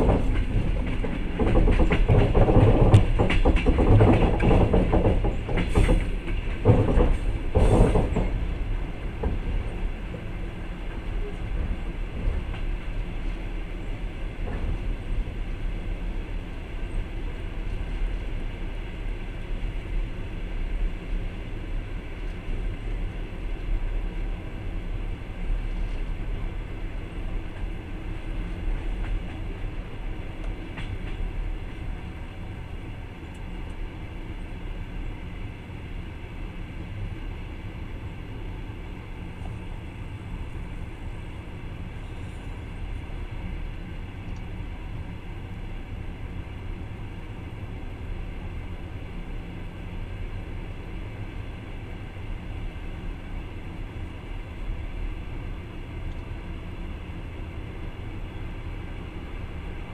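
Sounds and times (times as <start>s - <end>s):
train wheels rumbling on rails: 0.0s - 59.9s
faint clicks: 44.2s - 44.5s.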